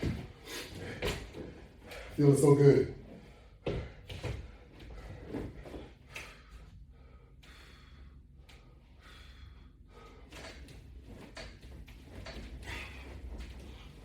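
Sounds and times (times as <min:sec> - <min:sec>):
steady low hum: 0:00.0 - 0:14.0
person breathing hard: 0:03.1 - 0:10.6, 0:12.6 - 0:14.0.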